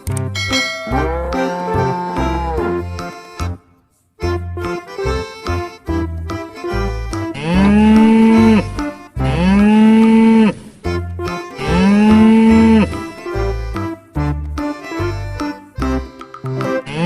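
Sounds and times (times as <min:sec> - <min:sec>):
light background music with beat: 0:00.0 - 0:17.0
cow mooing: 0:00.8 - 0:02.9, 0:07.4 - 0:08.7.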